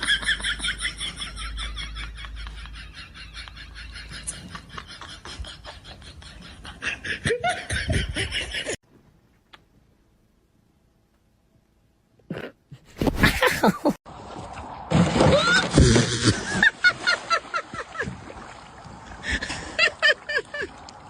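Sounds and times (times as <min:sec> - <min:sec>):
laughter in quick bursts: 0:00.0 - 0:08.8, 0:12.8 - 0:14.0.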